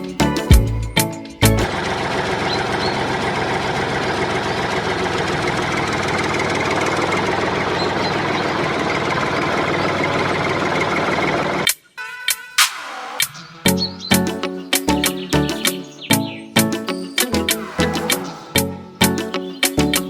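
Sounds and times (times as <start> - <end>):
small engine running: 1.6 - 11.7.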